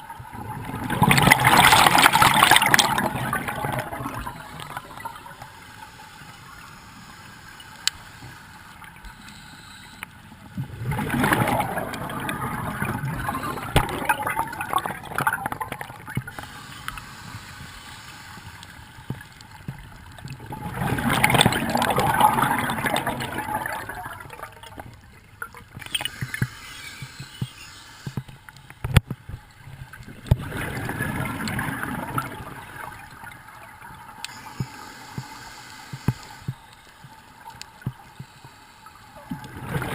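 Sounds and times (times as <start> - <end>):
underwater water noise: 0.0 - 39.9
underwater exhalation bubbles: 0.4 - 5.2, 10.6 - 16.2, 20.4 - 24.8.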